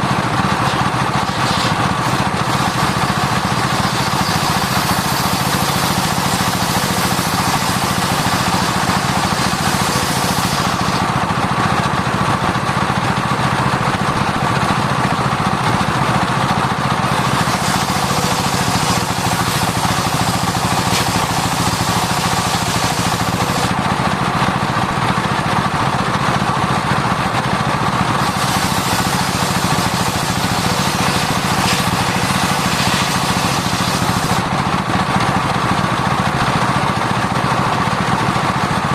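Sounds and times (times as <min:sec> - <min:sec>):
circular saw cutting wood: 0:00.0 - 0:12.6, 0:16.1 - 0:24.0, 0:28.0 - 0:36.5
low machine rumble: 0:00.0 - 0:38.9.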